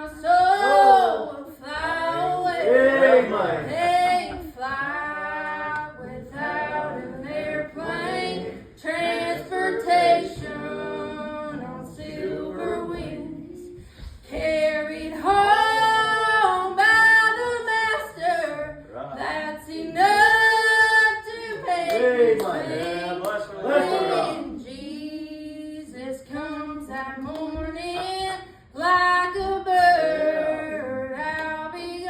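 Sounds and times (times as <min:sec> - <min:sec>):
woman singing gospel song: 0:00.0 - 0:32.0.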